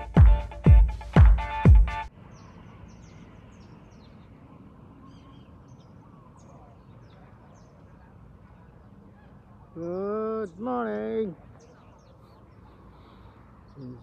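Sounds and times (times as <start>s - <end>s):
small birds chirping: 2.1s - 14.0s.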